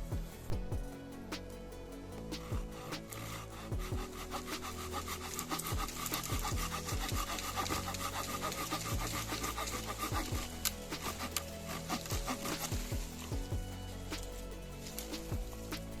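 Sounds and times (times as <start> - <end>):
background music with low bass: 0.0 - 16.0
hand saw cutting wood: 4.3 - 10.2.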